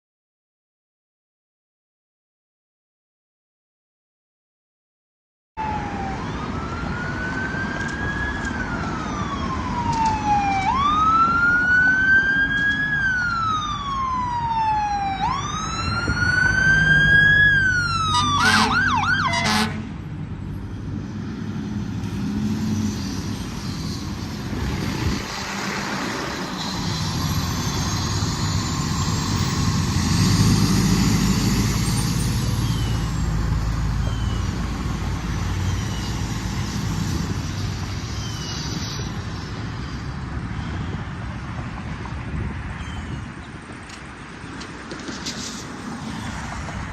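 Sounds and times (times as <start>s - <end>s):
fire truck siren wailing: 5.6s - 19.9s, 22.5s - 39.6s.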